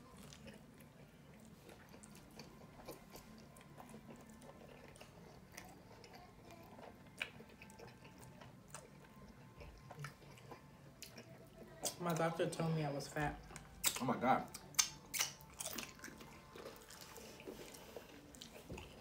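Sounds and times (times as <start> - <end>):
low room hum: 0.0 - 19.0
people chewing food: 0.0 - 19.0.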